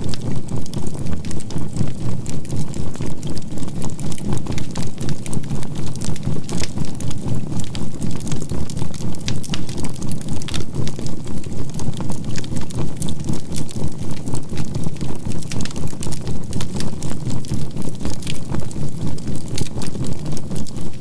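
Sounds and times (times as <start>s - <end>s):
crackling campfire with pops: 0.1s - 20.9s.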